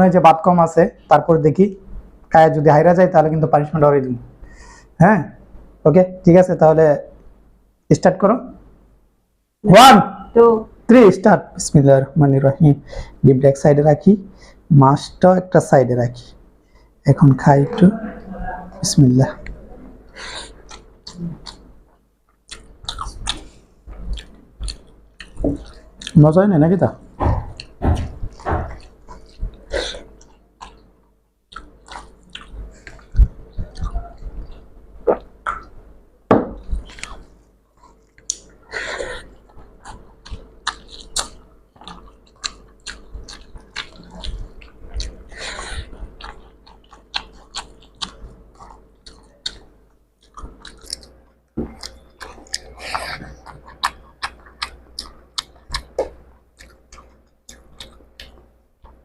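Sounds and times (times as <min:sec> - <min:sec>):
chewing with wet clicks: 0:20.2 - 0:21.7, 0:22.3 - 0:26.4, 0:27.4 - 0:35.8, 0:36.6 - 0:59.0
lip smacks: 0:31.5 - 0:35.8, 0:36.5 - 0:59.0.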